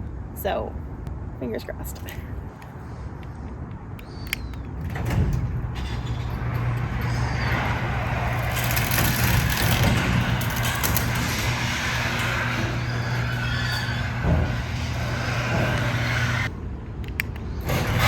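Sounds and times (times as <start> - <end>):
garage door motor humming: 4.7 - 16.5, 17.6 - 18.0
garage door rattling on tracks: 4.8 - 16.5, 17.6 - 18.0.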